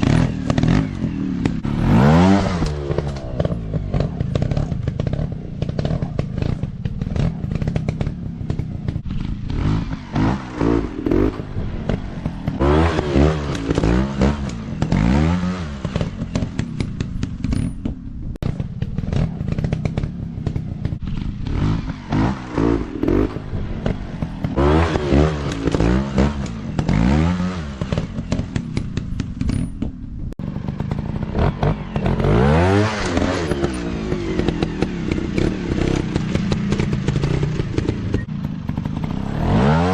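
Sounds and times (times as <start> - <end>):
dirt bike engine revving: 0.0 - 17.7, 18.4 - 29.7, 30.4 - 39.9.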